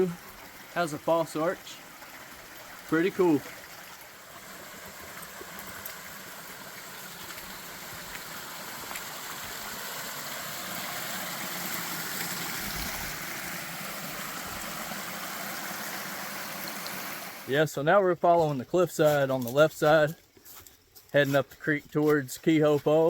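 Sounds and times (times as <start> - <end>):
creek water flowing: 0.0 - 23.0.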